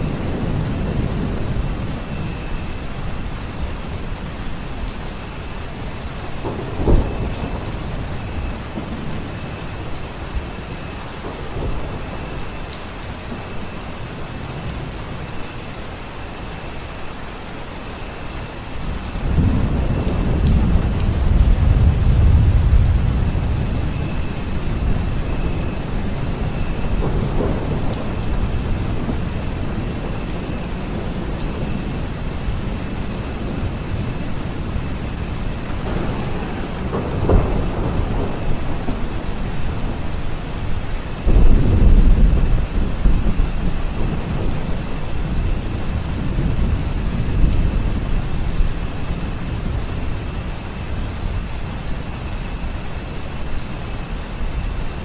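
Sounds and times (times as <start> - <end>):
thunder rumbling: 0.0 - 15.3, 18.6 - 55.0
steady rain: 0.0 - 55.0
thunder crack: 19.4 - 24.0, 35.7 - 40.1.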